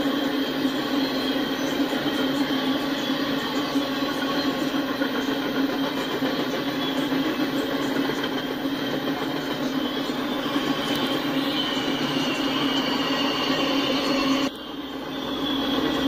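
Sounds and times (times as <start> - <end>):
train wheels running on rails: 0.0 - 16.0.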